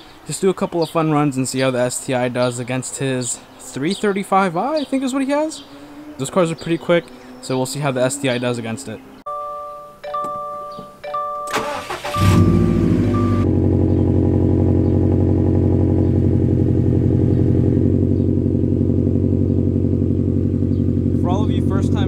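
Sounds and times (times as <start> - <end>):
dashboard warning chime: 9.3 - 13.5
car engine starting and idling: 11.5 - 22.0.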